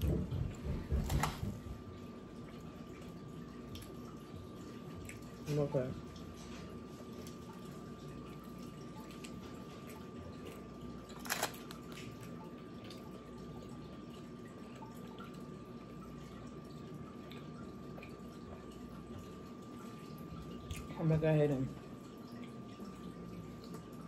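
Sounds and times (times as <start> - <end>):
water trickling: 1.6 - 24.0
chewing and mouth clicks: 9.0 - 12.3.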